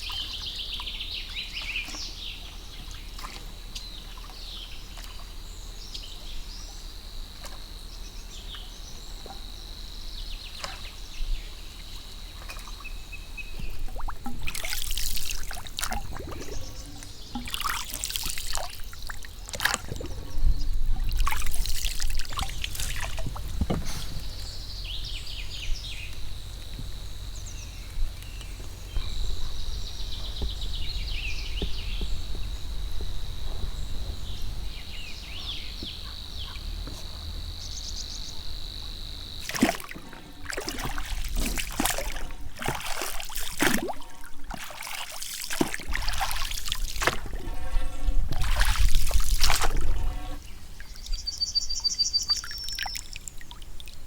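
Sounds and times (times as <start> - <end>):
water trickling and splashing: 0.0 - 7.7, 10.4 - 54.0
steady low rumble: 18.6 - 39.4
high bird calls: 22.6 - 38.9, 50.4 - 53.3.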